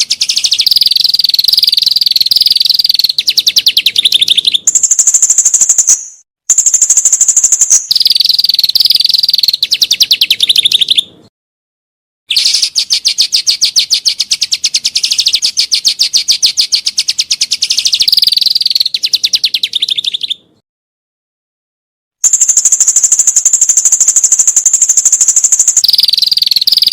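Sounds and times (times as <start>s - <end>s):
songbird trilling: 0.0s - 11.3s, 12.3s - 20.6s, 22.2s - 26.9s.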